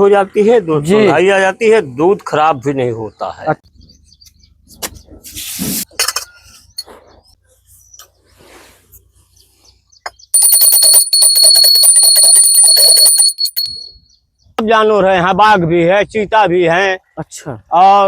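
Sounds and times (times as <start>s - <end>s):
small metal bell ringing: 10.3s - 14.2s.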